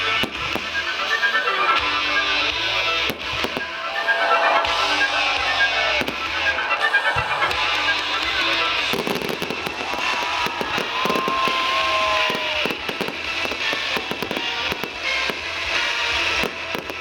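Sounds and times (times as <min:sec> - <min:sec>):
music playing: 0:00.0 - 0:17.0
fireworks popping and crackling: 0:05.2 - 0:17.0.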